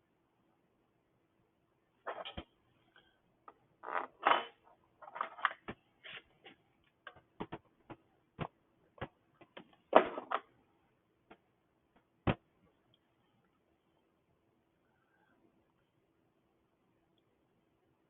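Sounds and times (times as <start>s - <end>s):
metal and plastic parts clattering: 4.2s - 7.6s.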